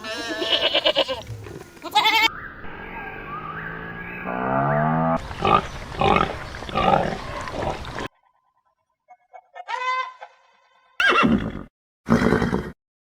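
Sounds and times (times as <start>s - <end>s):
pig grunting: 5.4s - 7.9s.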